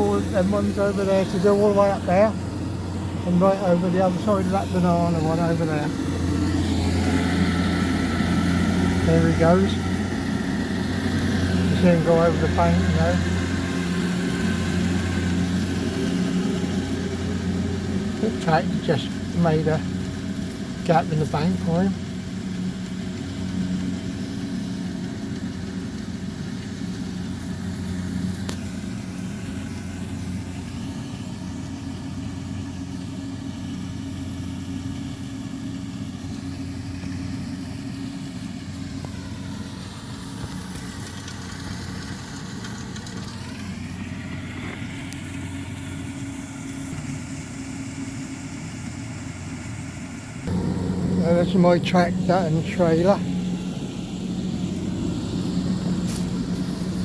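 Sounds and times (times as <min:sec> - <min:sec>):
engine changing speed: 0:00.0 - 0:19.8, 0:50.4 - 0:57.0
farm machinery engines running: 0:00.0 - 0:57.0.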